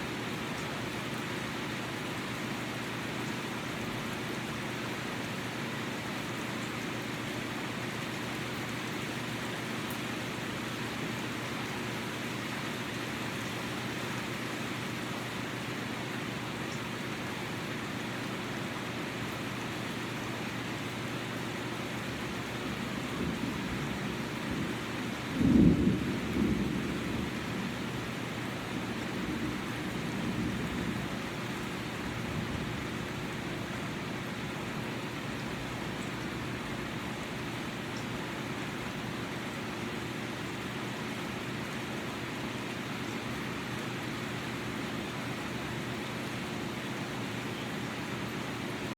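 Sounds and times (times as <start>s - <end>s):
rain falling: 0.0s - 48.9s
thunder rumbling: 23.2s - 27.9s.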